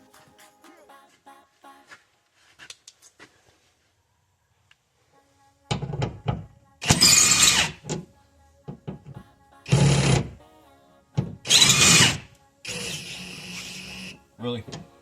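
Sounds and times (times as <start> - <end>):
power tool burst: 6.8 - 7.8, 11.5 - 14.2.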